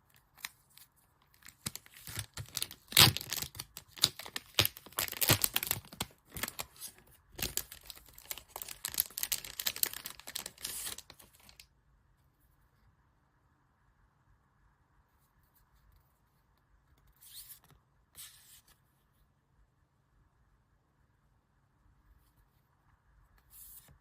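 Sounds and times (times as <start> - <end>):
packaging being torn and crinkled: 0.1 - 11.6.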